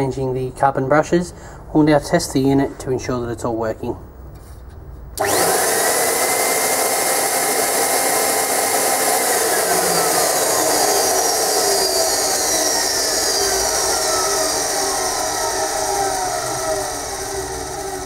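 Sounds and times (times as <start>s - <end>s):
motor bearing noise: 5.2s - 18.0s
vacuum motor whining rush: 5.2s - 18.0s.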